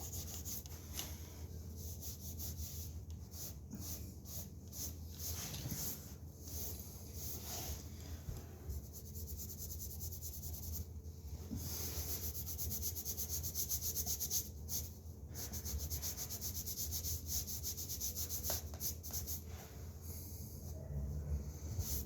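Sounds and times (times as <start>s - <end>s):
sponge scrubbing drywall: 0.0s - 7.9s, 11.5s - 19.7s.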